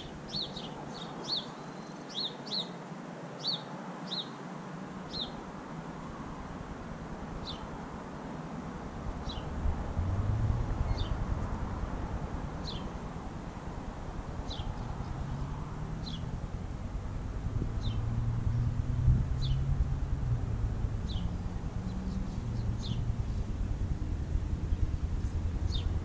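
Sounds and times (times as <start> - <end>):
small bird chirping: 0.0 - 2.8, 5.1 - 5.4, 7.4 - 7.7, 9.2 - 9.6, 10.7 - 11.9, 12.6 - 13.1, 14.3 - 16.4, 17.8 - 19.8, 20.9 - 26.0
low rumble: 9.0 - 26.0.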